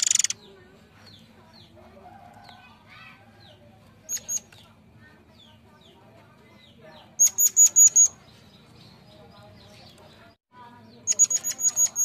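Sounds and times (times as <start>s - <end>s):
bird whistled calls: 7.2s - 8.2s, 11.1s - 12.0s.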